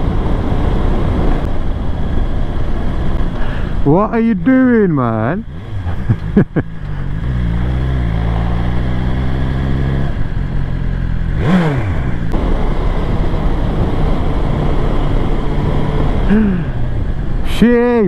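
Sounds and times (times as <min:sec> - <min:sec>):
wind noise: 0:00.0 - 0:18.0
motorcycle engine running: 0:05.3 - 0:17.4.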